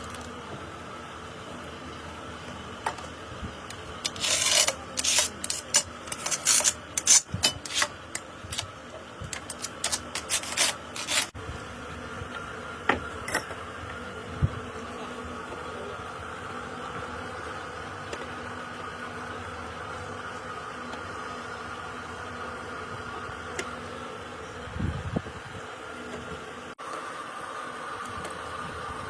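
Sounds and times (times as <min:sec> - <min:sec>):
rough rasping scraping: 0:03.7 - 0:08.7, 0:09.3 - 0:11.4.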